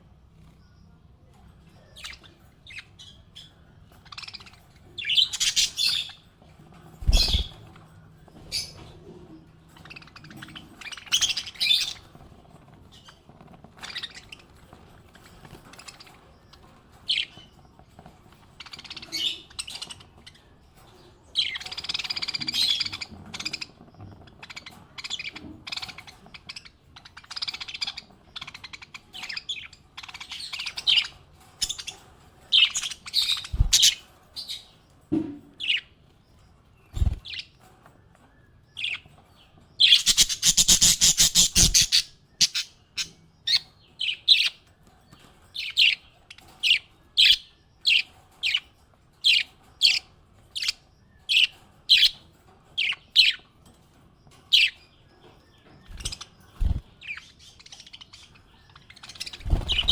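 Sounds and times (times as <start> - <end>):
parrots chirping: 2.0 - 6.2, 7.0 - 7.8, 9.7 - 17.6, 18.4 - 20.5, 21.4 - 34.8, 39.8 - 44.7, 55.8 - 59.9
parrot rapid chattering: 39.9 - 42.7.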